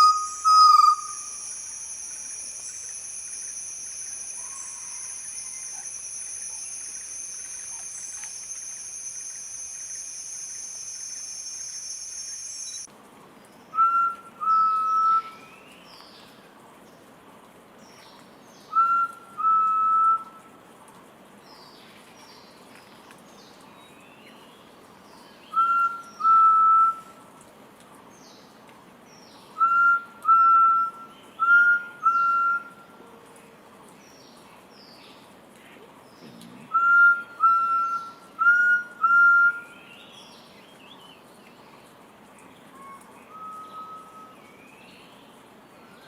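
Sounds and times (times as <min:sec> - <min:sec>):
high insect drone: 0:00.0 - 0:12.9
small birds chirping faintly: 0:00.0 - 0:13.7
quail whistled two-note call: 0:42.8 - 0:44.3.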